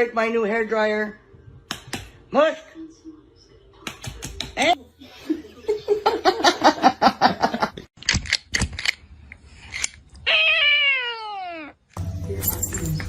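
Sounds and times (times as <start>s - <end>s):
cat meowing: 10.2s - 11.8s.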